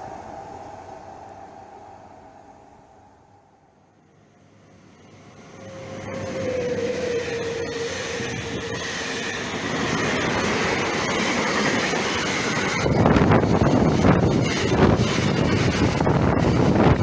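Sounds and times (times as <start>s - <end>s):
electric locomotive passing: 0.0s - 17.0s
train rolling rumble and clatter: 4.8s - 17.0s
thin high wheel squeal: 5.4s - 12.8s.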